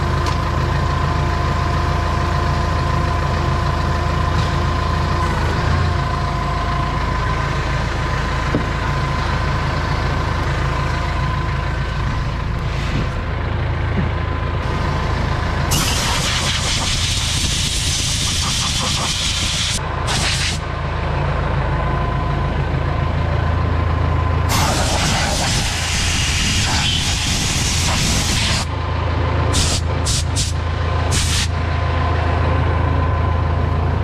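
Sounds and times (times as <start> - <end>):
heavy engine running: 0.0 - 34.0
air gun hissing: 15.7 - 20.6, 24.5 - 28.6, 29.6 - 31.5.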